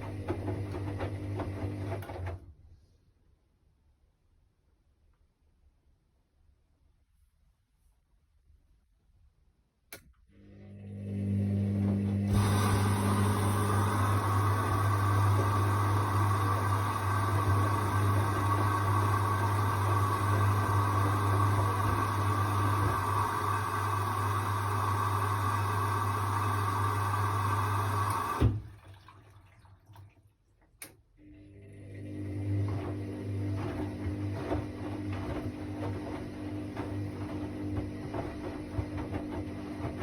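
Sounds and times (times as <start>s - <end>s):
water rushing into washing machine: 0.0s - 2.6s, 10.3s - 40.0s
click: 9.9s - 10.2s, 30.8s - 31.0s.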